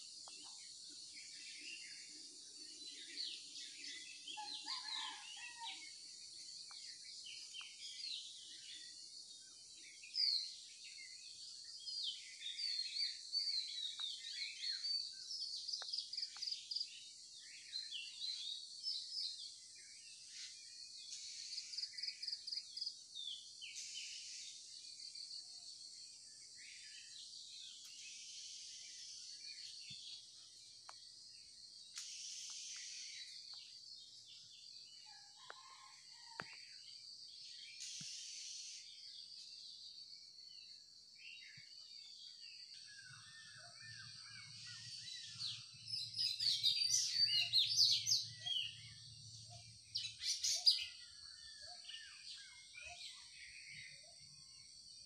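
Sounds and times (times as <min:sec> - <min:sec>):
birds chirping and trilling: 0:00.0 - 0:55.0
insects hissing: 0:31.9 - 0:33.3, 0:37.8 - 0:39.0.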